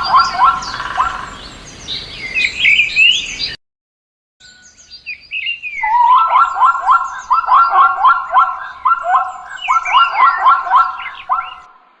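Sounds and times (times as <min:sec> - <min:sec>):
animal calls with rising notes: 0:00.0 - 0:01.4, 0:05.7 - 0:11.8
high chirps: 0:00.0 - 0:03.4, 0:05.5 - 0:11.7.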